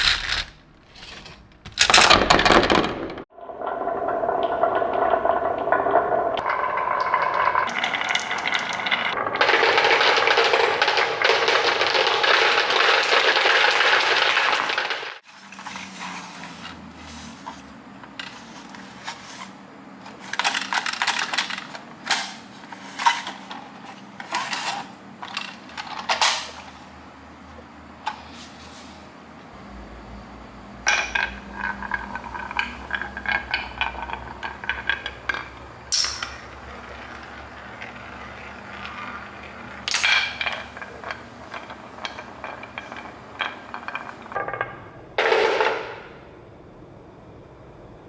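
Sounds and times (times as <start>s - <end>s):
marbles rattling along track: 0.0s - 3.2s, 6.4s - 16.8s, 30.9s - 44.5s.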